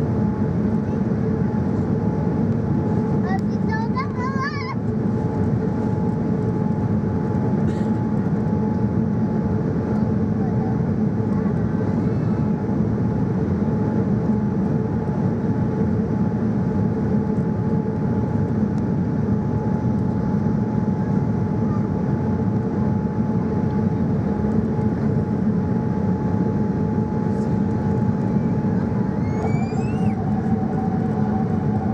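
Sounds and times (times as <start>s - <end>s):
airliner cabin engine rush: 0.0s - 31.9s.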